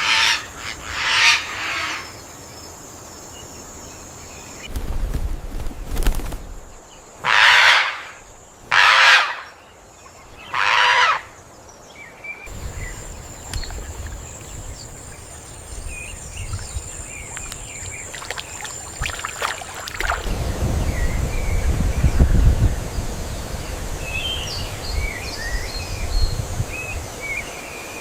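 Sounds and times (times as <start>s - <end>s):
rasping animal calls: 12.5s - 20.3s
short bird chirps: 12.5s - 20.3s
high insect whine: 12.5s - 20.5s
low wind rumble: 12.5s - 25.2s.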